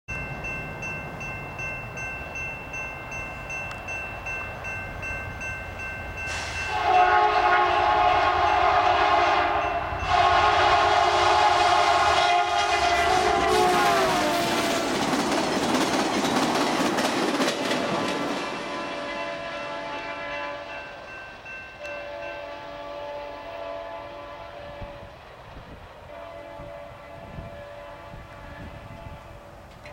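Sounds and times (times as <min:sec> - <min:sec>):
level crossing bell ringing: 0:00.1 - 0:06.8
train clattering past: 0:00.1 - 0:26.8
locomotive horn blasts: 0:06.3 - 0:14.5, 0:18.4 - 0:21.0, 0:21.8 - 0:25.2, 0:26.0 - 0:29.4.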